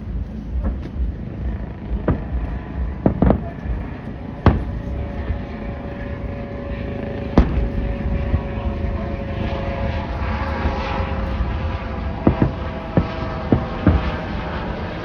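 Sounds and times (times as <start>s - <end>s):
low rumble: 0.0s - 15.0s
firework bang: 7.4s - 7.8s, 13.0s - 14.2s.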